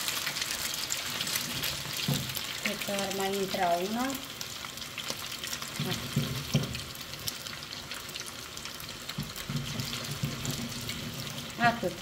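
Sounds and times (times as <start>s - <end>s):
meatballs sizzling in hot oil: 0.0s - 12.0s.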